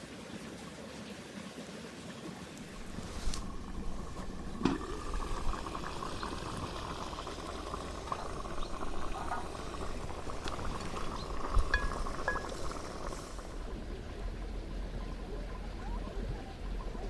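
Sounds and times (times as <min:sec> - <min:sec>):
stew bubbling and sizzling: 0:00.0 - 0:17.0
campfire crackling: 0:02.6 - 0:13.8.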